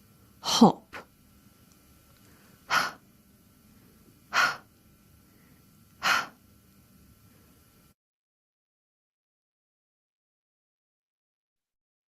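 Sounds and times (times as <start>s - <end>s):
breathy h sound puffs: 2.3s - 3.0s, 4.3s - 4.7s, 5.4s - 6.4s.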